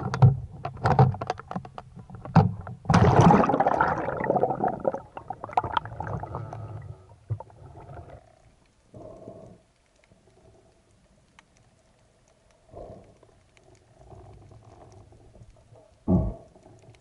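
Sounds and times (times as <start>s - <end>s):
water splashing and bubbling: 2.9s - 8.4s.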